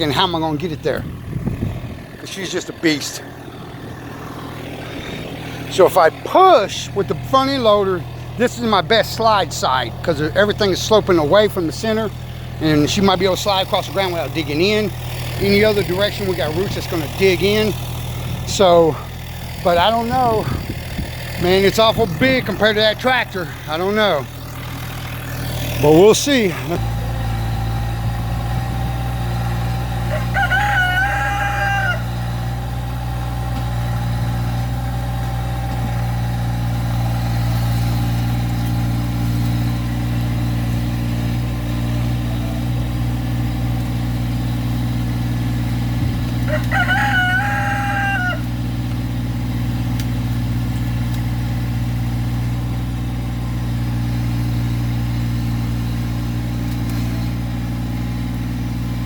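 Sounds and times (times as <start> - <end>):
tractor diesel engine running: 0.0 - 59.0
rooster crowing: 29.8 - 32.6, 41.9 - 42.9, 46.4 - 48.7.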